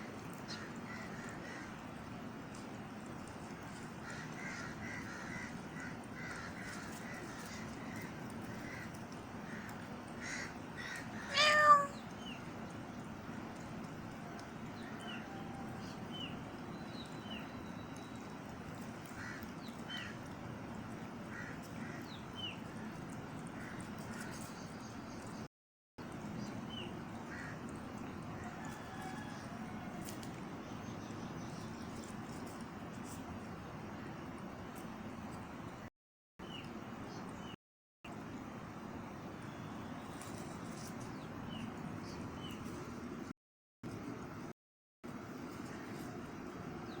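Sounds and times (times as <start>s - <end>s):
cat meowing: 11.1s - 12.1s.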